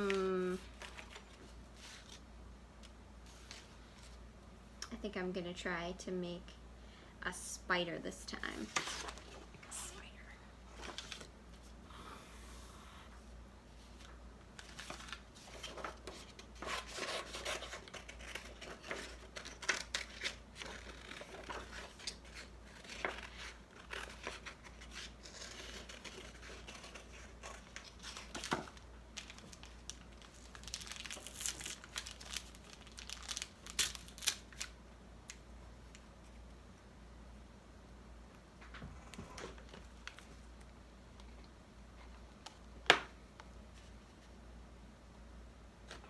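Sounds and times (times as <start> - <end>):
paper rustling and crinkling: 0.0 - 2.2, 8.6 - 9.7, 10.7 - 11.7, 13.8 - 36.4
faint low hum: 0.0 - 46.0.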